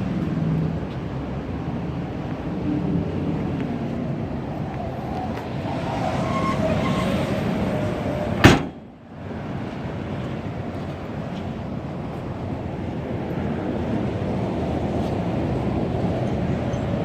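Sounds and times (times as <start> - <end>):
sharp knock: 8.4 - 8.8.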